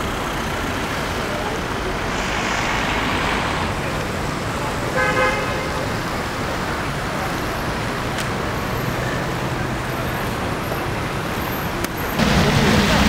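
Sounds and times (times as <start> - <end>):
car engines and tyres: 0.0 - 13.0.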